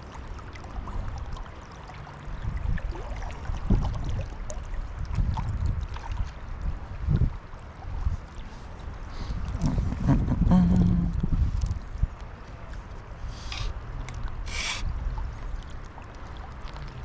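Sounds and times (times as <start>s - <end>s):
low thumps and sloshing: 0.0s - 17.0s
river water rushing: 12.3s - 17.0s.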